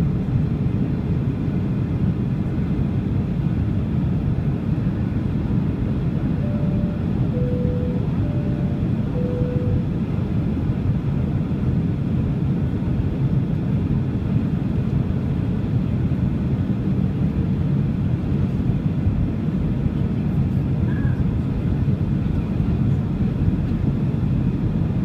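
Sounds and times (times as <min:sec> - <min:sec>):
airliner cabin engine rumble: 0:00.0 - 0:25.0
short faint tones: 0:06.4 - 0:09.9.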